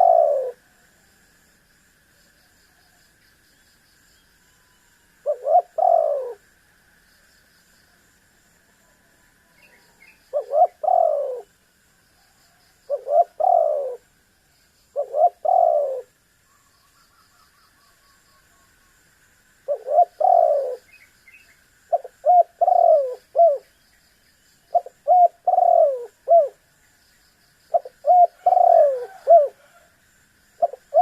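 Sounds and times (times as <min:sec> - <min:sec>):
dove cooing: 0:00.0 - 0:00.7, 0:05.2 - 0:06.4, 0:09.8 - 0:11.5, 0:12.5 - 0:14.1, 0:15.0 - 0:16.2, 0:19.6 - 0:21.0, 0:21.9 - 0:23.7, 0:24.7 - 0:26.6, 0:27.7 - 0:29.9, 0:30.6 - 0:31.0.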